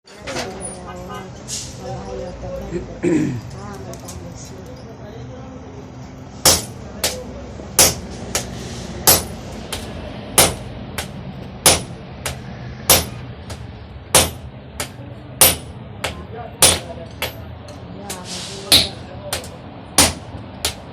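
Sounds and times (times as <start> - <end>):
hammer striking metal: 6.4 - 17.5, 18.1 - 20.9.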